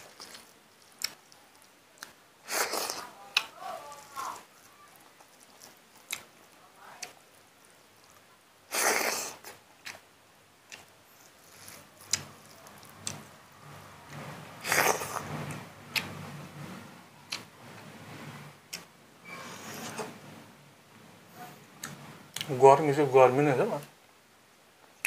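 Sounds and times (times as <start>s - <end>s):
man chewing food: 0.0s - 16.4s, 17.2s - 17.9s, 21.7s - 22.5s.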